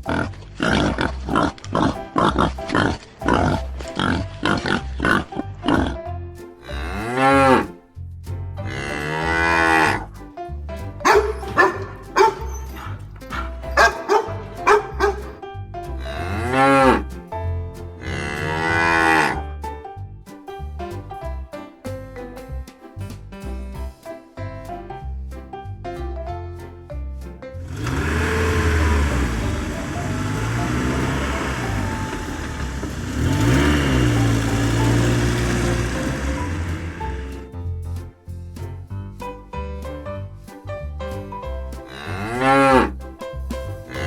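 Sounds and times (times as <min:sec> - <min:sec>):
cow mooing: 0:18.0 - 0:19.4
background music with a beat: 0:19.6 - 0:27.5.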